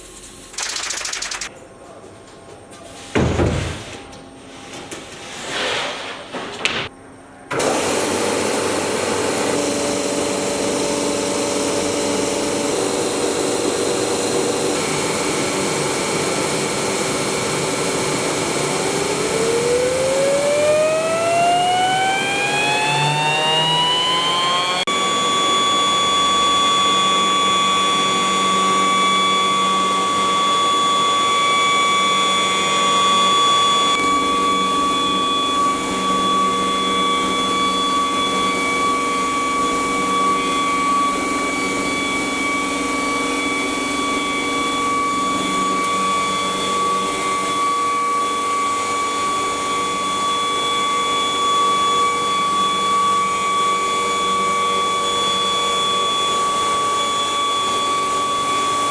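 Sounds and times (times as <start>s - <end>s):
router spindle whining: 17.9s - 58.3s.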